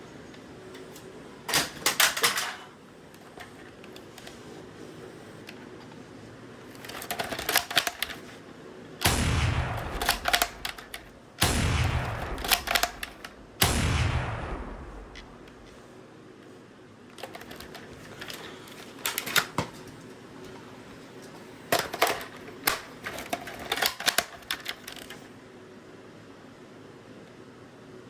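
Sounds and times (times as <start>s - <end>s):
airsoft rifle shots: 9.0s - 15.7s
metallic rifle bolt clicking: 9.8s - 11.1s, 12.0s - 13.4s.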